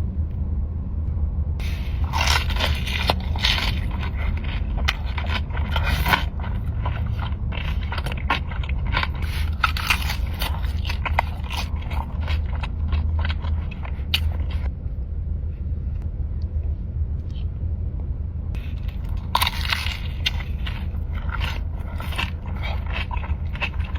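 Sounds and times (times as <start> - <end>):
steady low hum: 0.0 - 23.9
person chewing crunchy food: 1.6 - 14.7, 18.6 - 23.9.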